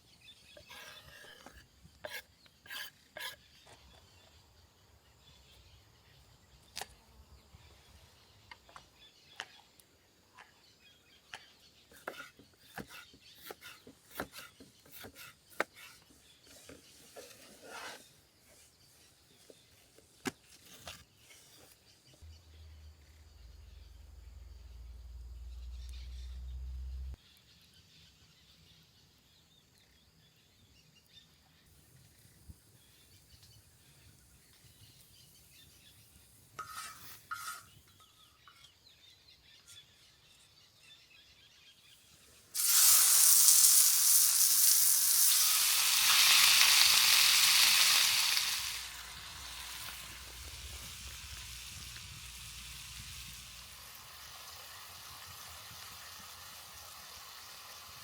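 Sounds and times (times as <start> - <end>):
skillet sizzling: 42.2 - 58.0.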